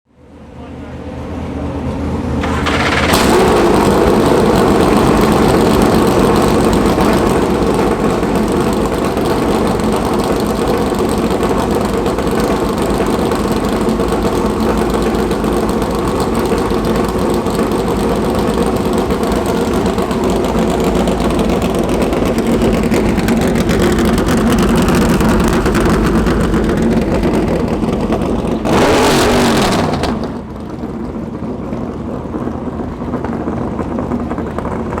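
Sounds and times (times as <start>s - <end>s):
race car engine running: 1.1s - 35.0s.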